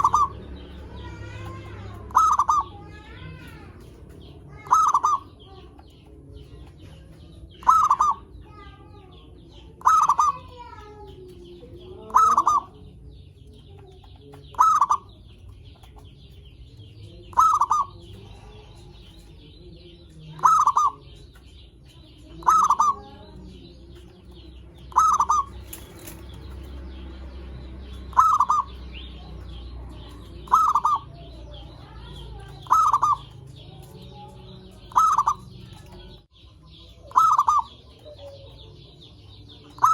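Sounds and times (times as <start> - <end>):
dove cooing: 0.0 - 6.0, 7.0 - 8.4, 9.8 - 10.7, 11.4 - 12.9, 14.4 - 15.2, 17.3 - 19.5, 20.3 - 21.2, 22.3 - 26.5, 28.1 - 36.2, 37.0 - 39.9.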